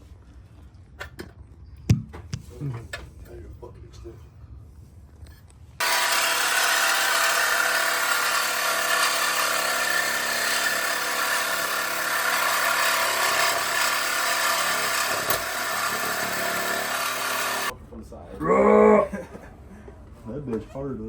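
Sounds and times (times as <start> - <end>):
power tool cutting metal pipe: 5.8 - 17.7.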